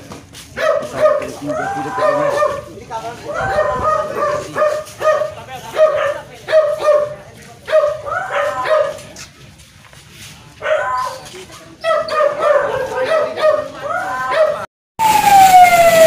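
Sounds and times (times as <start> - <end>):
dog barking in high yips: 0.6 - 2.7, 3.3 - 9.1, 10.6 - 14.7.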